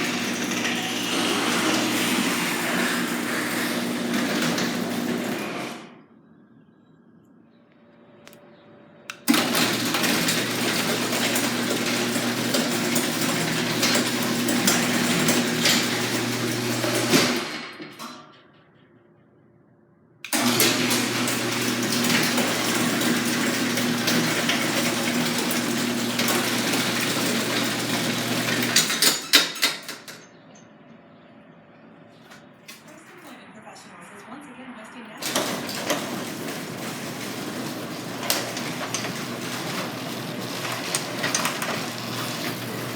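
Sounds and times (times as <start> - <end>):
garage door clanking: 0.0 - 6.0, 9.1 - 19.0, 20.3 - 30.4, 35.2 - 42.9
garage door opener motor hum: 0.0 - 6.7, 7.6 - 19.4, 20.2 - 33.0, 35.2 - 42.9.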